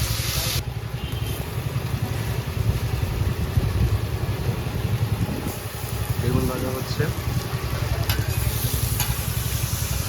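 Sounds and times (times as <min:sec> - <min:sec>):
oil frying hiss: 0:00.0 - 0:10.0
low fluttering rumble: 0:01.4 - 0:10.0.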